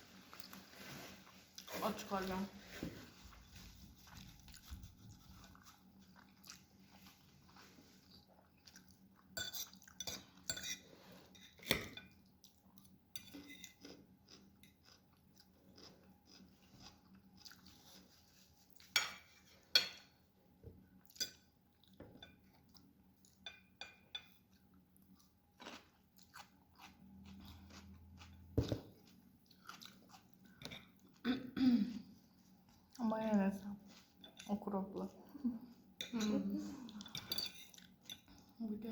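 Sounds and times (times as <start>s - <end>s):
person chewing and crunching food: 3.1s - 11.5s, 12.1s - 19.0s, 24.3s - 33.3s.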